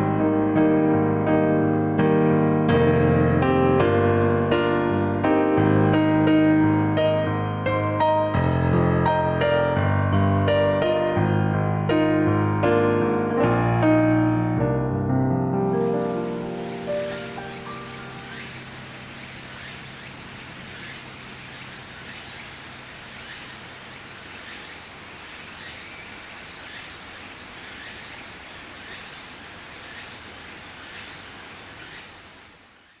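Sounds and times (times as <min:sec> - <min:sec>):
high insect buzz: 0:00.0 - 0:33.0
insects trilling: 0:00.0 - 0:33.0
faint chirps: 0:03.8 - 0:06.7, 0:15.8 - 0:33.0.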